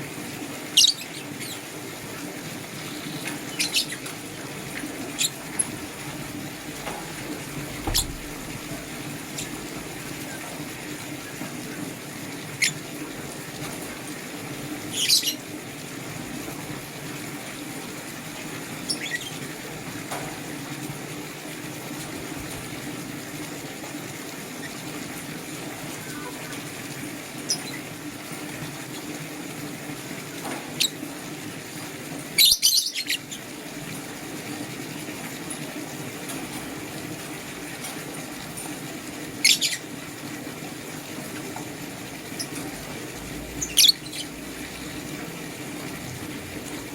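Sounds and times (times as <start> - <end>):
lovebirds chirping shrilly: 2.8 - 4.1, 39.4 - 39.9, 43.6 - 44.4.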